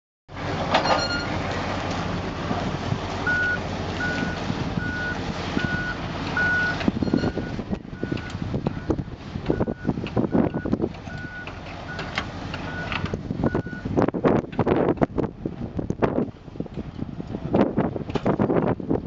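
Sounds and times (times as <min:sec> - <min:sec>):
heavy vehicle engine running: 0:00.3 - 0:19.0
reversing alarm beeping: 0:00.8 - 0:01.3, 0:03.3 - 0:12.1, 0:12.7 - 0:13.8.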